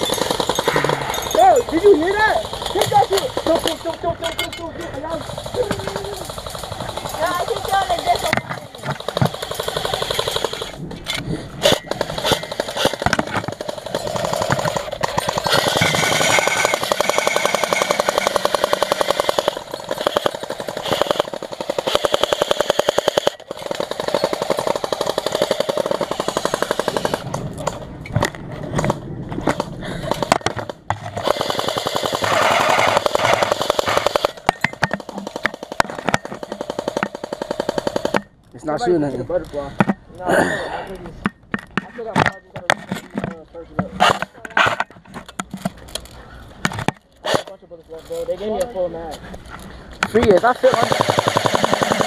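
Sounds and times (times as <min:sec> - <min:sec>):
airsoft gun full-auto bursts: 0:00.0 - 0:04.1, 0:05.1 - 0:10.8, 0:11.6 - 0:27.3, 0:31.2 - 0:38.3, 0:50.4 - 0:52.0.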